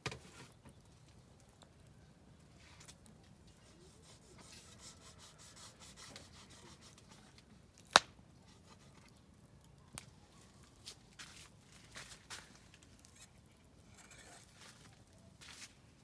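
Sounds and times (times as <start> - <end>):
firewood crackling: 0.0 - 16.0
sharp pop from fire: 7.9 - 8.2.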